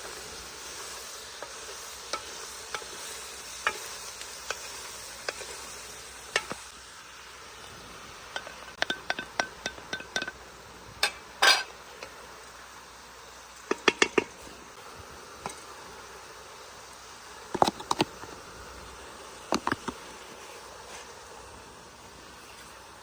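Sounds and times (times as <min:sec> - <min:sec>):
faint steady hiss: 0:00.0 - 0:23.0
metal utensils clinking on cookware: 0:08.3 - 0:10.4, 0:11.0 - 0:12.1, 0:13.7 - 0:14.4.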